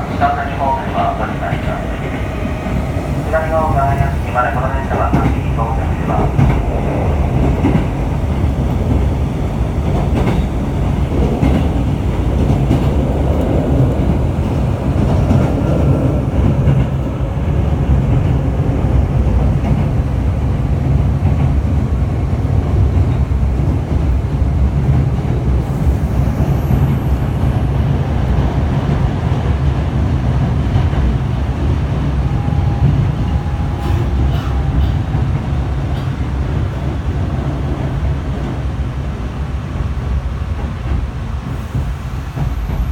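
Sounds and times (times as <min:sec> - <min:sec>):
train rumbling at speed: 0:00.0 - 0:42.9.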